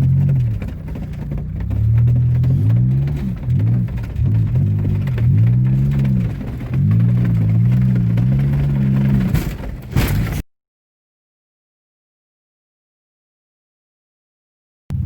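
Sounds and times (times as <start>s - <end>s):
car engine accelerating without muffler: 0.0s - 9.8s.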